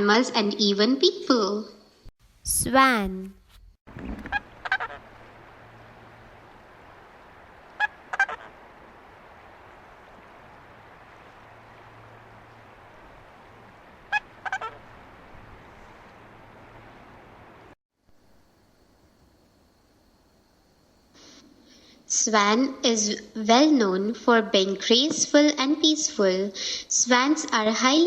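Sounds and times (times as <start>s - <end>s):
swan honking: 4.2s - 5.3s, 7.7s - 8.6s, 14.1s - 15.0s
faint hiss: 15.0s - 22.3s.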